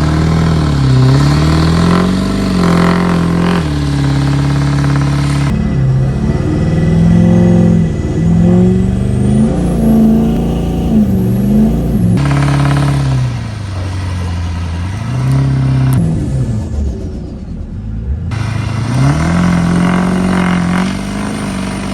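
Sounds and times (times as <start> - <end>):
diesel truck engine revving: 0.0 - 21.9.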